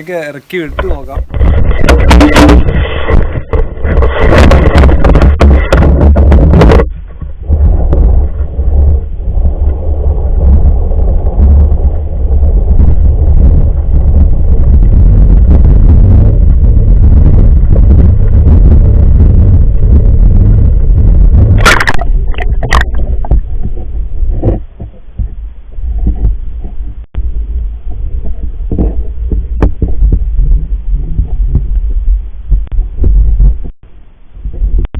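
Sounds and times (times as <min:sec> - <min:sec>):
muffled low rumble and rustling: 0:00.0 - 0:34.9
sharp knocks: 0:00.8 - 0:07.3.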